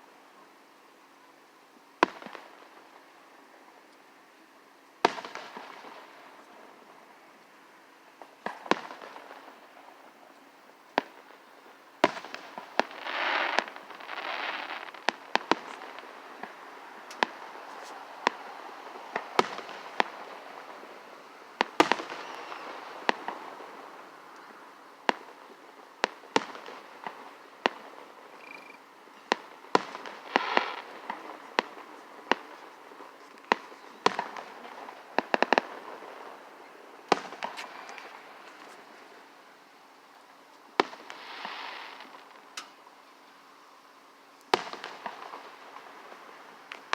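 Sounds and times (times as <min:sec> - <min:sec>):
fireworks crackling: 0:02.0 - 0:03.5, 0:05.0 - 0:46.9
fireworks bangs: 0:05.0 - 0:06.8, 0:08.3 - 0:39.4, 0:40.7 - 0:42.7, 0:44.5 - 0:46.9.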